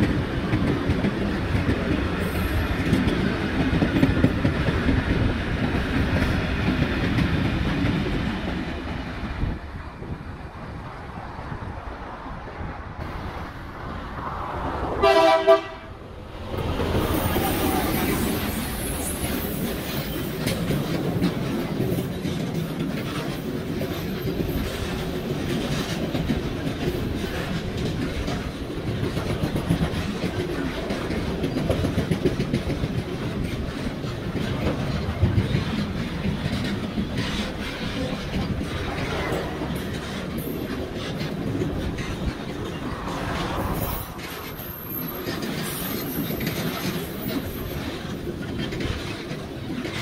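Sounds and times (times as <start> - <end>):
train rumbling over rails: 0.0 - 50.0
locomotive horn blast: 15.0 - 16.0.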